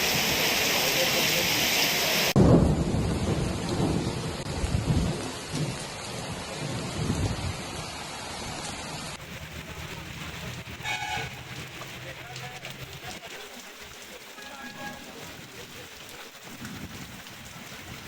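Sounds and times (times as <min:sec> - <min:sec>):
rain hissing: 0:00.0 - 0:18.0
thunder rumbling: 0:02.3 - 0:07.8, 0:09.2 - 0:13.3.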